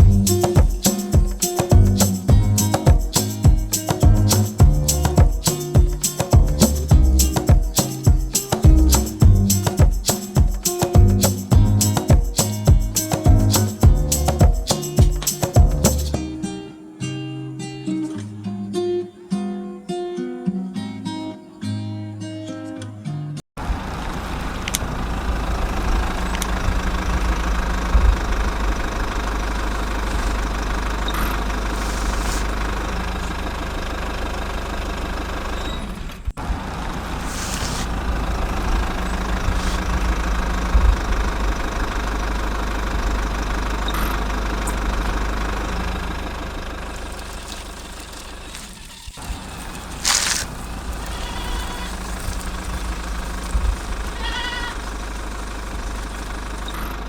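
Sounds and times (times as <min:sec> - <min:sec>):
diesel truck engine rumbling: 0:00.0 - 0:00.6, 0:01.6 - 0:05.6, 0:06.4 - 0:08.0, 0:23.6 - 0:57.0.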